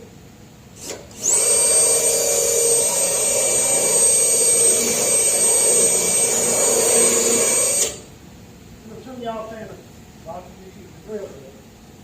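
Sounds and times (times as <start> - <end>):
die grinder whining: 0.8 - 8.1.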